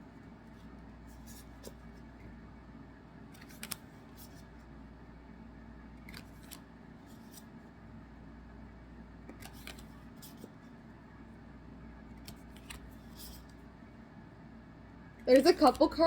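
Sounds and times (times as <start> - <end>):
cards rustling and clicking: 1.1 - 2.2, 3.3 - 4.5, 6.0 - 7.5, 9.3 - 10.7, 12.2 - 13.6, 15.4 - 16.0.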